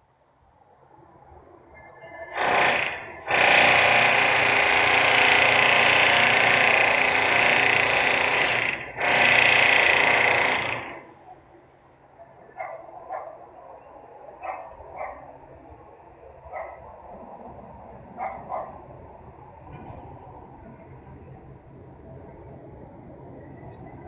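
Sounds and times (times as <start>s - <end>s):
loud industrial machine noise: 2.3s - 11.1s.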